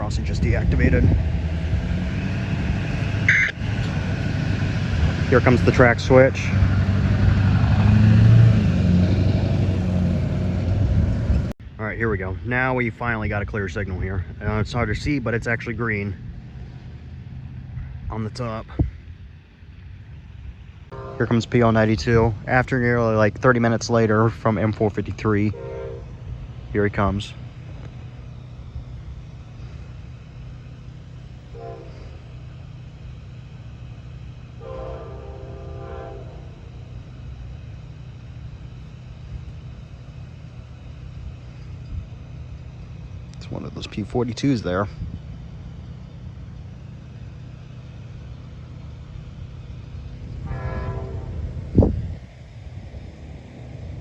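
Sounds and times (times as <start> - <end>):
train rumble: 0.0 - 54.0
locomotive horn blasts: 3.3 - 3.6, 20.9 - 21.7, 25.5 - 26.3, 31.5 - 32.3, 34.6 - 36.9, 50.2 - 51.8
loud blip: 3.3 - 3.6.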